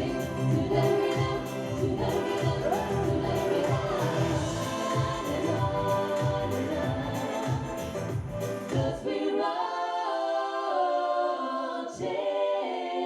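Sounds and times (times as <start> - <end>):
low rhythmic beat: 0.0 - 9.0
women singing in harmony: 0.0 - 13.0.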